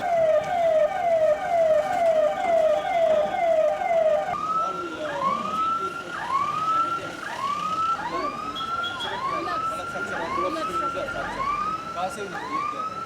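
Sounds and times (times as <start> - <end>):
emergency siren yelp and whoop: 0.0 - 13.0
second siren: 0.0 - 13.0.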